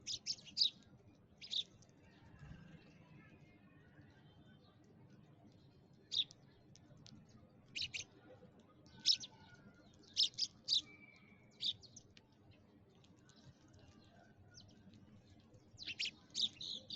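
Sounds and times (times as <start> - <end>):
sparrow chirping: 0.0 - 0.8, 1.4 - 1.8, 6.0 - 6.4, 7.7 - 8.2, 8.9 - 12.1, 15.6 - 16.9.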